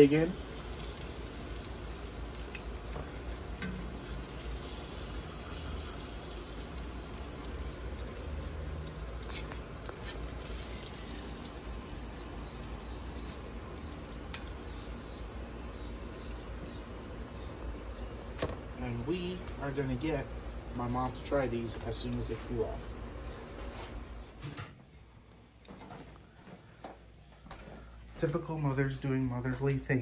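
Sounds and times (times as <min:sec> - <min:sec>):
fish frying in hot oil: 0:00.0 - 0:19.2.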